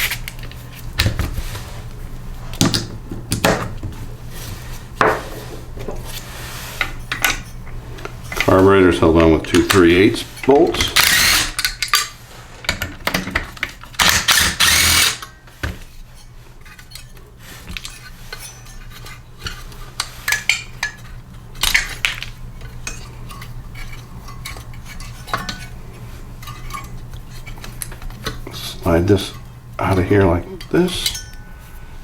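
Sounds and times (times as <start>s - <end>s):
loud power tool burst: 11.0s - 11.7s, 14.0s - 15.2s
metal tools clinking and rattling: 30.6s - 31.5s.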